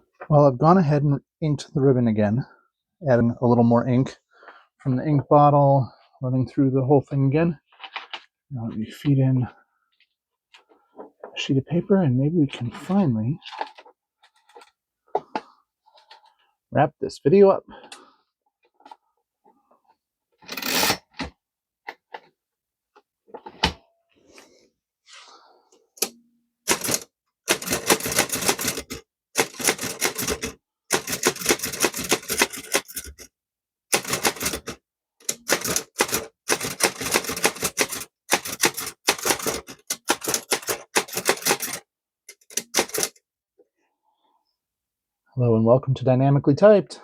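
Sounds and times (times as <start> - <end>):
typewriter keystrokes: 26.7 - 33.1, 34.0 - 43.2
typewriter clicks: 26.7 - 33.2, 34.0 - 43.2.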